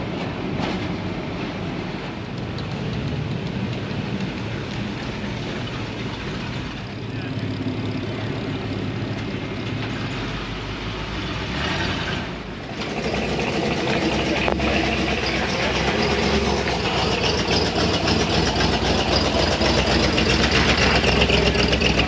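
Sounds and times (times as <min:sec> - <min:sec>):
truck engines running: 0:00.0 - 0:22.0
voices in background: 0:06.4 - 0:09.1, 0:13.8 - 0:17.9.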